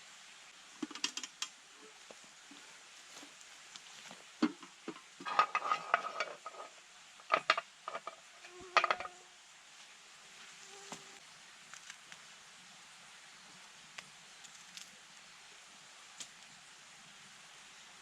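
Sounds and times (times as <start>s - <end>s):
metal cookware clinking and scraping: 4.5s - 9.2s.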